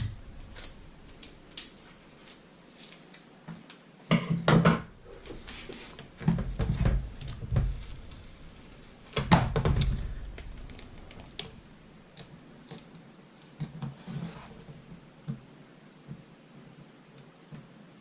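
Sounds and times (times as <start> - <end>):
tape handling clicks and rustles: 0.0 - 3.9, 5.1 - 8.4, 9.0 - 14.0.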